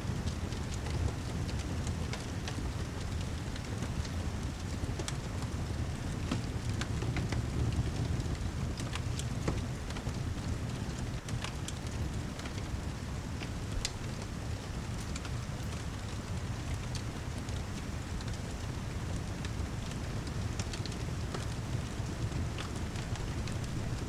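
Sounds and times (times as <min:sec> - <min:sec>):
heavy rain: 0:00.0 - 0:24.0
wood fire crackling: 0:00.0 - 0:24.0.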